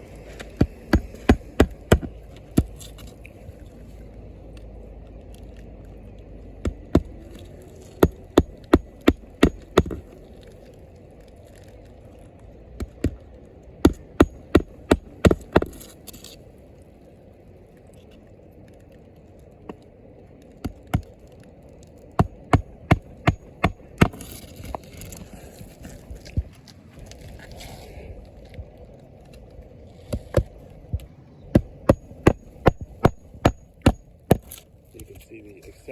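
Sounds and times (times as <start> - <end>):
hammer striking roofing nails: 0.5 - 2.8, 6.6 - 7.3, 8.0 - 10.2, 13.8 - 15.9, 22.2 - 24.2, 31.6 - 34.6.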